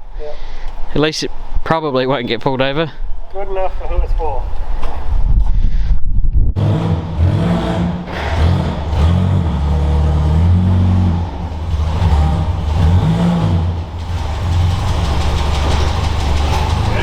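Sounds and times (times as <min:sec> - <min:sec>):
car engine revving: 0:06.6 - 0:17.0.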